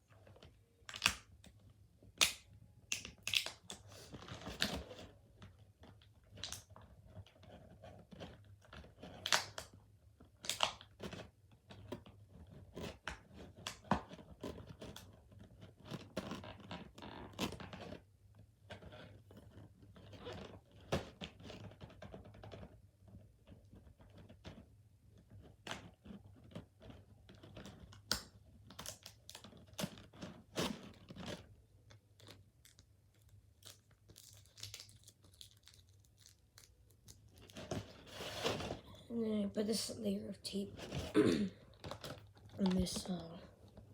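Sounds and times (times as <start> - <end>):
packing tape peeling and tearing: 2.2 - 5.1, 25.6 - 38.8
packaging crinkling: 28.7 - 39.0.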